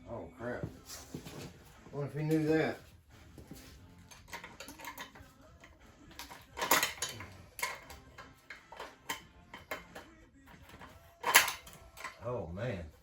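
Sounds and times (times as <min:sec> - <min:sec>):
metallic clicks and knocks: 0:04.1 - 0:12.2.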